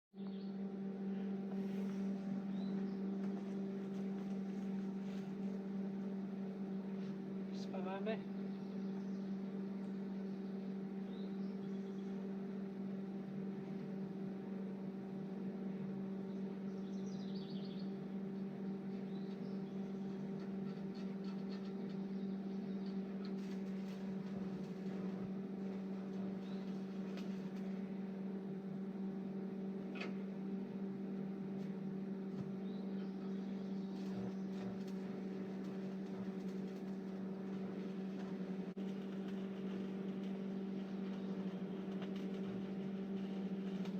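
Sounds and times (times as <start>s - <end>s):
welding machine humming: 18.0s - 43.9s.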